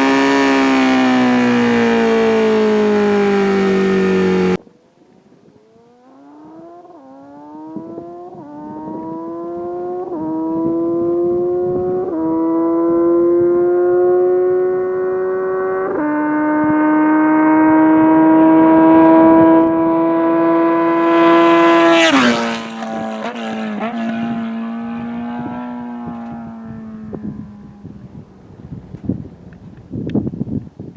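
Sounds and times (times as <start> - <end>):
motorcycle engine accelerating: 0.0 - 4.6, 5.6 - 29.7
exhaust crackles: 20.8 - 28.0.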